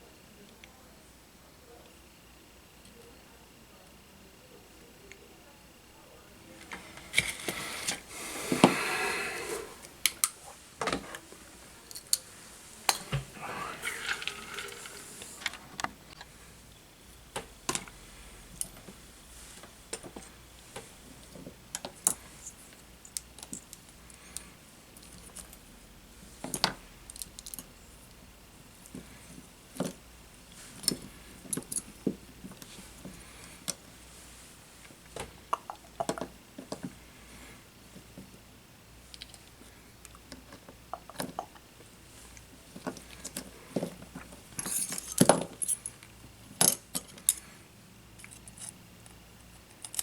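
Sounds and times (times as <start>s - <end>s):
tools clicking and clinking: 44.6s - 47.4s, 49.7s - 50.0s.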